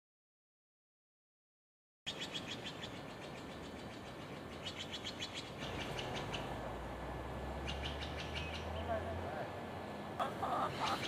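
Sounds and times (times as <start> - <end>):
small birds chirping: 2.1 - 9.6, 10.2 - 11.0.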